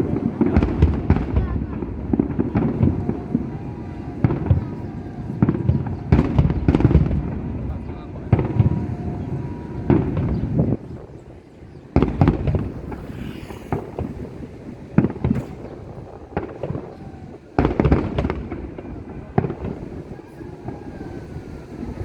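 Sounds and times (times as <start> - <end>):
faint firework crackle: 0.0 - 22.0
fireworks booming: 0.0 - 22.0.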